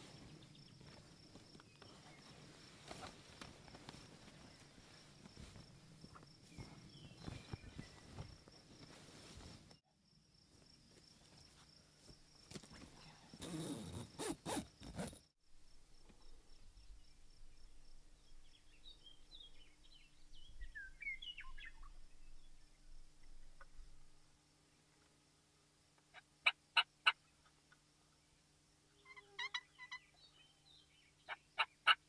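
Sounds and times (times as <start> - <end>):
rustling and stepping: 0.0 - 9.8
songbirds chirping: 0.0 - 9.8, 15.8 - 25.2, 25.9 - 32.0
faint insect hum: 0.0 - 32.0.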